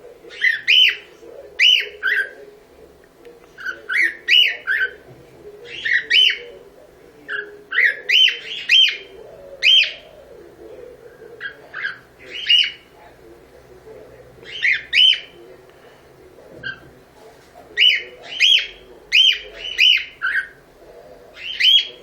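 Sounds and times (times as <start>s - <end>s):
cockatiel chirping: 0.3s - 2.4s, 3.6s - 5.0s, 5.6s - 6.6s, 7.3s - 10.2s, 11.4s - 12.9s, 14.4s - 15.4s, 17.8s - 20.6s, 21.3s - 22.0s.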